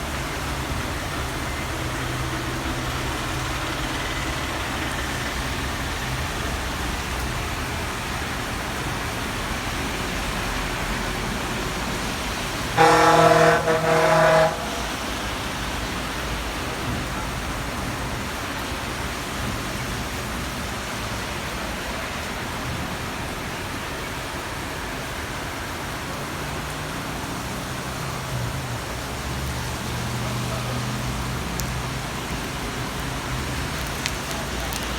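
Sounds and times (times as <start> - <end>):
rain falling: 0.0 - 34.9
vehicle horn honking: 12.8 - 15.0.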